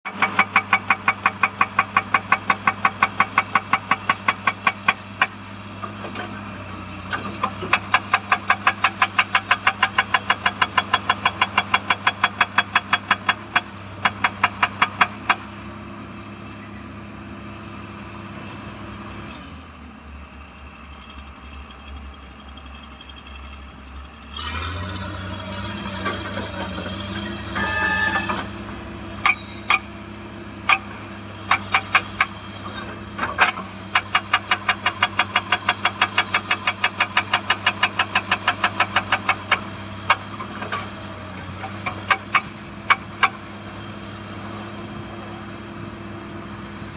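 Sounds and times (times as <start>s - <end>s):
hydraulic rock breaker hammering: 0.1s - 5.4s, 7.1s - 15.5s, 29.2s - 30.0s, 30.6s - 43.5s
diesel engine droning: 0.1s - 46.9s.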